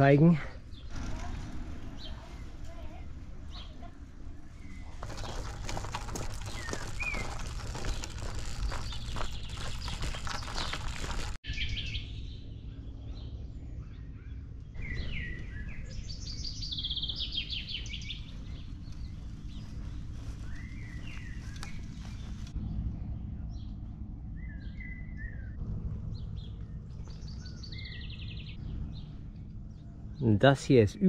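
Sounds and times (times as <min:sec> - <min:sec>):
small birds singing and chirping: 0:00.0 - 0:31.0
steady low rumble: 0:00.6 - 0:31.0
bird trill: 0:24.4 - 0:31.0.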